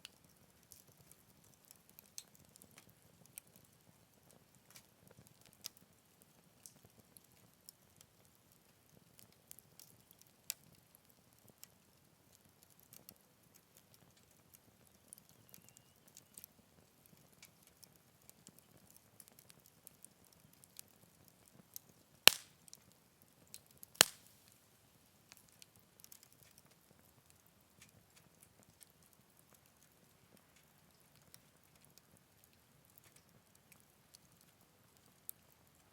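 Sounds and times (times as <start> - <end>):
wood fire crackling softly: 0.0 - 35.9
loud sharp fire pops: 22.3 - 22.6, 24.0 - 24.5.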